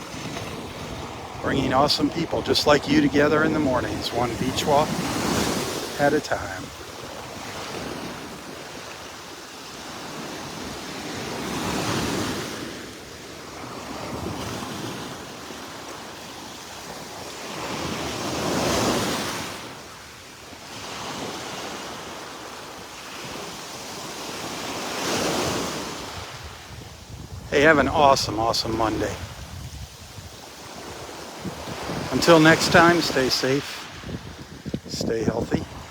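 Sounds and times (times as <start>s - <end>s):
small waves breaking on shore: 0.0s - 35.9s
wind rumbling on microphone: 25.9s - 33.0s, 33.8s - 35.9s.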